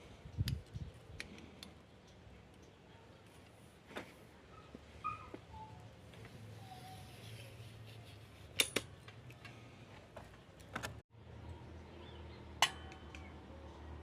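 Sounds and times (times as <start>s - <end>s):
slingshot metallic clicks: 8.5s - 9.5s
sharp snap with metallic ring: 12.6s - 13.3s.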